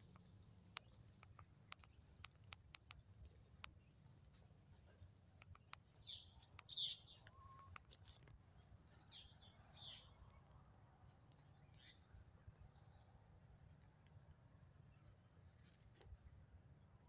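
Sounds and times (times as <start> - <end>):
light clicks: 0.0 - 4.4, 5.4 - 8.4
faint bird chirps: 5.4 - 7.9.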